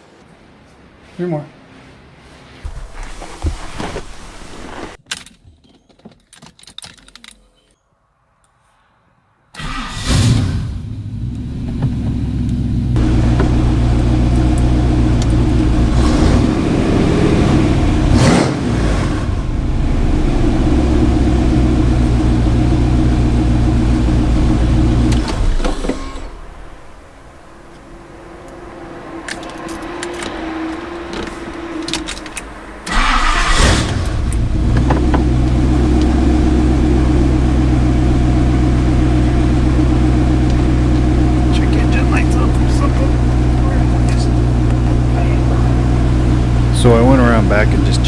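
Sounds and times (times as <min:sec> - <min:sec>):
car engine running: 0:10.7 - 0:48.0.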